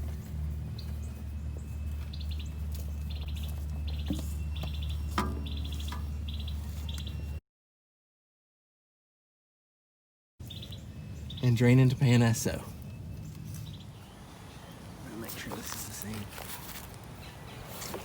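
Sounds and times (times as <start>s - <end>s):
steady low rumble: 0.0s - 7.4s.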